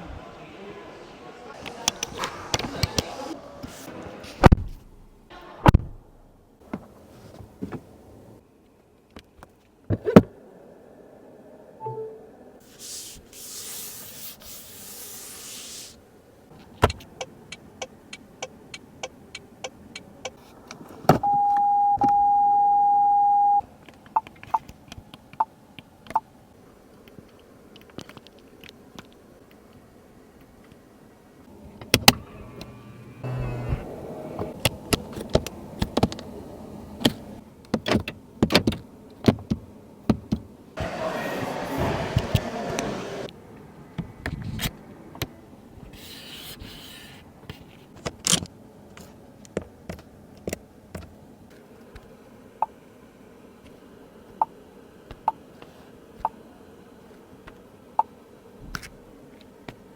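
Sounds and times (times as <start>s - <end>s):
electronic beep: 11.8s - 12.2s, 21.2s - 23.6s
hissing rush: 40.8s - 43.3s.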